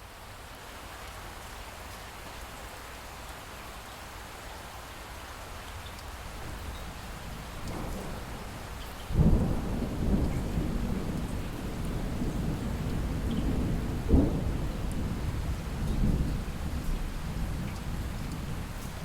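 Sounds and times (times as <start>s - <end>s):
light rain falling: 0.0s - 19.0s
distant thunder rumbling: 6.4s - 19.0s.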